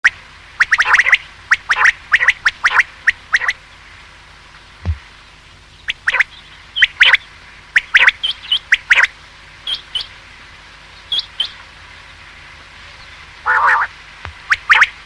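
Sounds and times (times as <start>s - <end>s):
quail calling: 0.0s - 3.6s, 5.8s - 7.2s, 7.8s - 10.2s, 13.4s - 15.0s.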